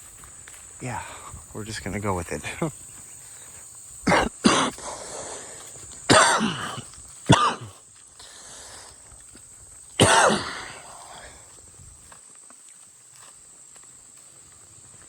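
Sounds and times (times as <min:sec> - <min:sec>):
man coughing: 0:04.1 - 0:04.8, 0:06.1 - 0:07.8, 0:10.0 - 0:11.0.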